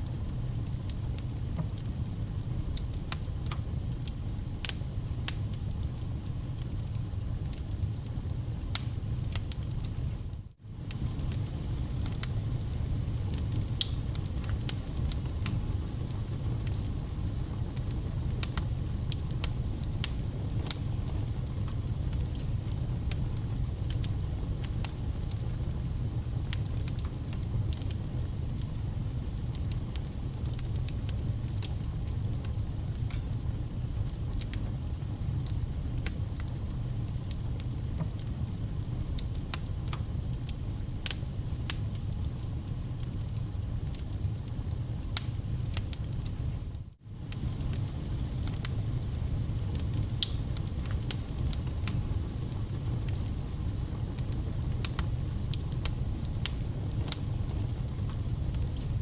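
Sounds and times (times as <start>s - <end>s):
fire low rumble: 0.0s - 59.0s
campfire crackling and popping: 0.1s - 10.1s, 10.8s - 46.5s, 47.1s - 59.0s.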